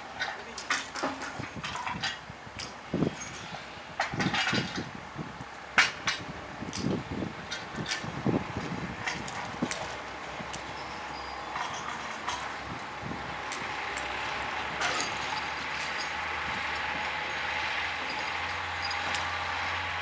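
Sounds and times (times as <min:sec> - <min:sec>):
truck diesel engine running: 0:06.3 - 0:20.0
sharp clinks and knocks: 0:07.5 - 0:20.0.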